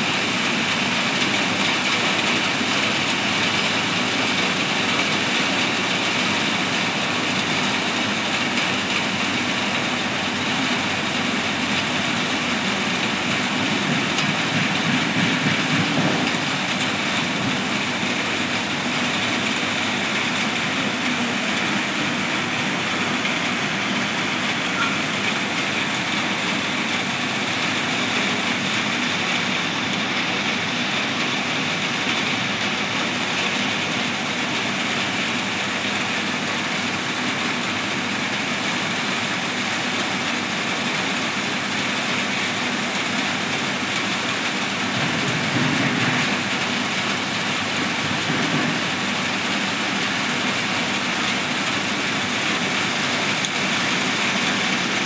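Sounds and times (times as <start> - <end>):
heavy rain on foliage: 0.0 - 55.0.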